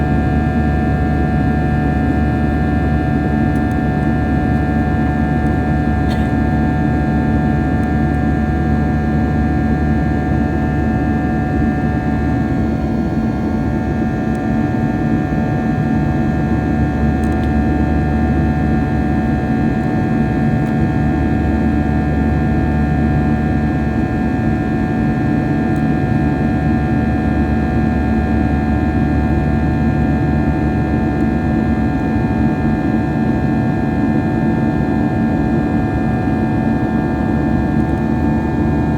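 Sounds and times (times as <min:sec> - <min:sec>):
airliner cabin drone: 0:00.0 - 0:22.6, 0:34.6 - 0:38.9.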